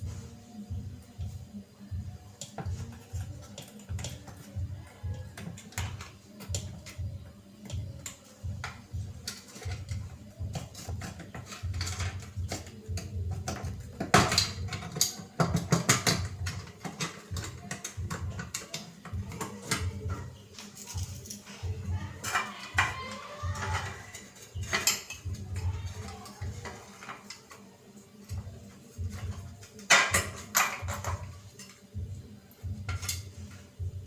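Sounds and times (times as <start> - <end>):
background music: 0.0 - 34.0
metal parts clicking and knocking: 7.6 - 21.5, 22.1 - 27.6, 28.2 - 32.0.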